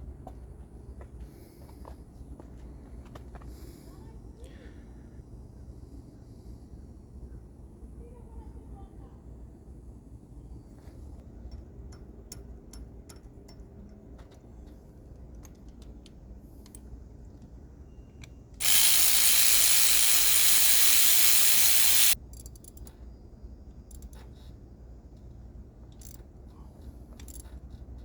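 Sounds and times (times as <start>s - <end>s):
hand tools clicking: 18.6s - 22.2s
loud steady hiss: 18.6s - 22.2s.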